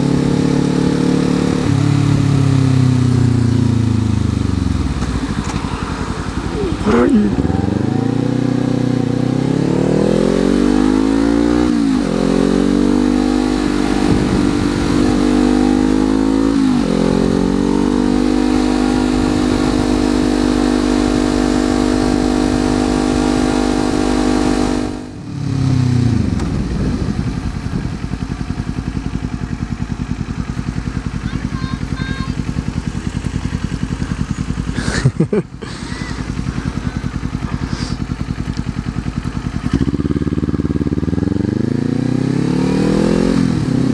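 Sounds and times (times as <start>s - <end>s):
motorcycle engine accelerating: 0.0s - 43.9s.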